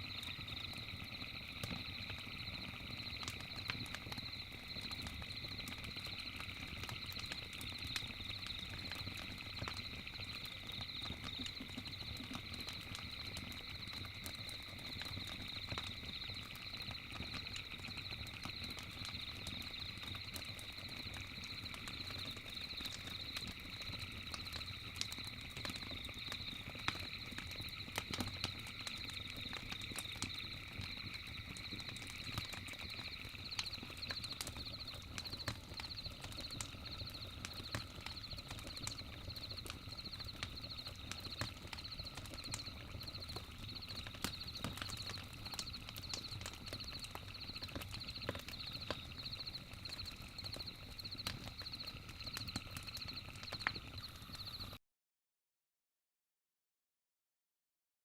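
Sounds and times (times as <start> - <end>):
campfire crackling and popping: 0.0 - 54.8
cicadas buzzing: 26.0 - 37.4.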